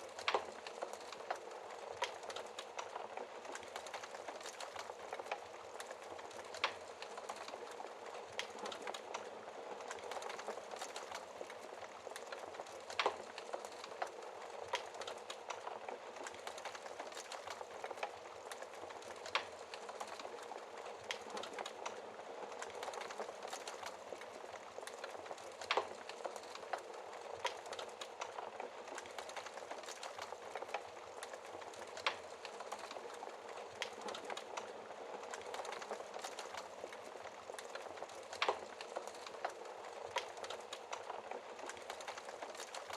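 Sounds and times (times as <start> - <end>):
wood fire crackling and popping: 0.0 - 42.9.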